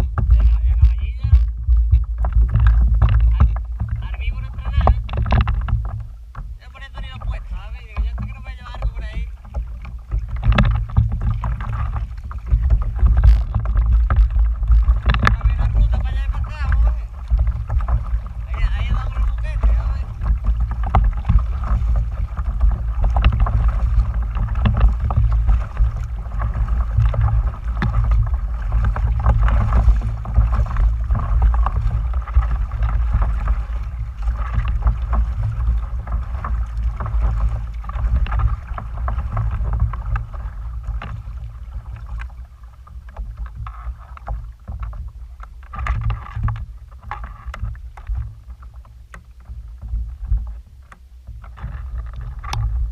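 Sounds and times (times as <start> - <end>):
wind buffeting microphone: 0.0 - 42.6
water noise: 0.0 - 52.9
small clicks and knocks: 4.8 - 6.5, 7.9 - 15.7, 43.1 - 52.8.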